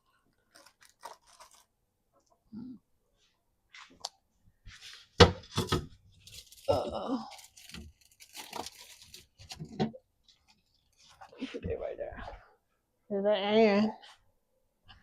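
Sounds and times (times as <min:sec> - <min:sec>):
plastic crinkling and rustling: 0:00.1 - 0:01.7, 0:04.8 - 0:11.6.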